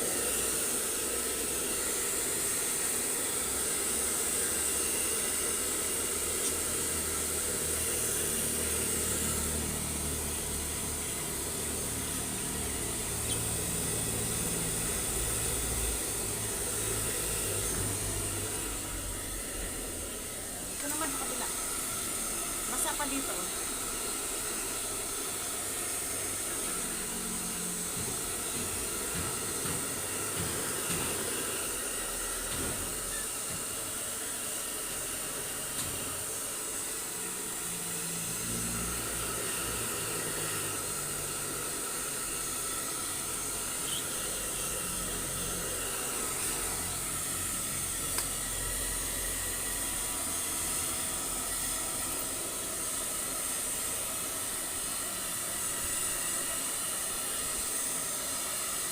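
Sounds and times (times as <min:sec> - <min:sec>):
blow dryer blowing: 0:00.0 - 0:58.9.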